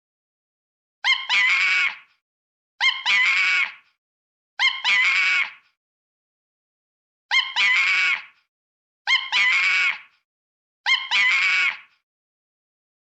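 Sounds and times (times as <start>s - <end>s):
monkey calling: 10.9s - 11.8s.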